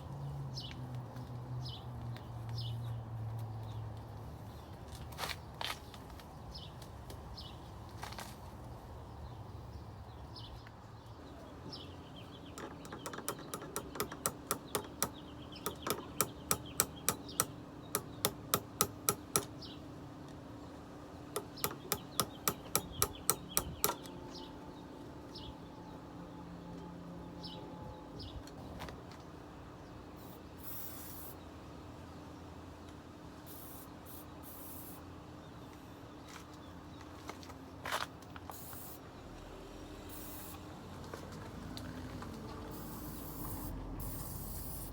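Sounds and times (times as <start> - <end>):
sharp clicks: 12.5 - 19.5, 21.4 - 24.2.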